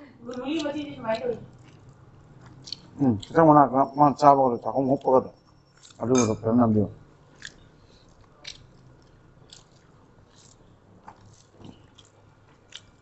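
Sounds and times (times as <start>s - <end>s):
mouth chewing sounds: 0.6s - 3.5s, 5.8s - 6.4s, 7.3s - 13.0s.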